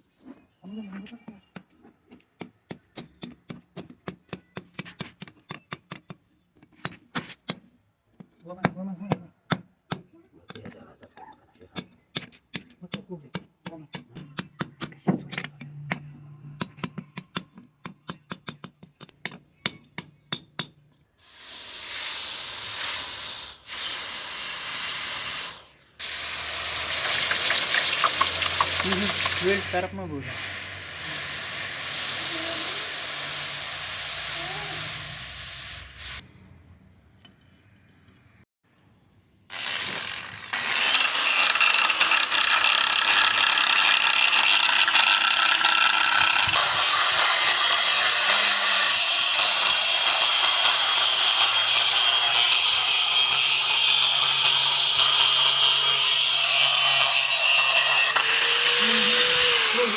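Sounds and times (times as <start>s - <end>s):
steady hissing: 21.2s - 36.2s
tool rasping steel: 21.4s - 36.2s, 39.5s - 59.9s.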